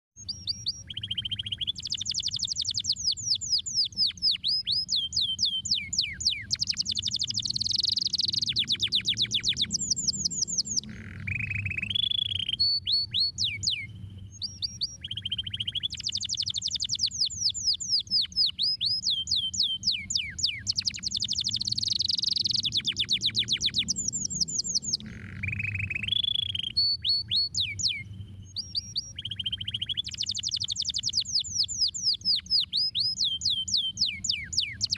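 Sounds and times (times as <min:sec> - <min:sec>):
canary singing trills: 0:00.2 - 0:34.9
steady low hum: 0:05.0 - 0:15.8, 0:19.6 - 0:32.0.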